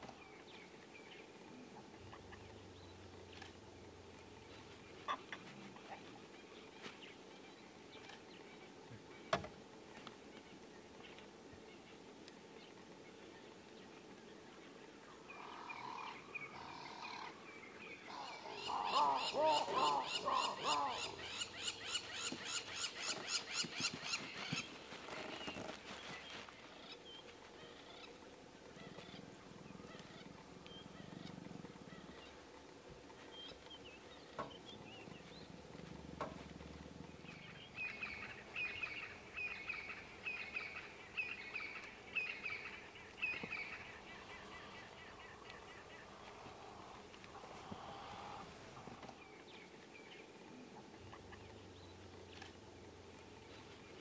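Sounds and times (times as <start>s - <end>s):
birds calling rapidly: 15.3s - 49.5s.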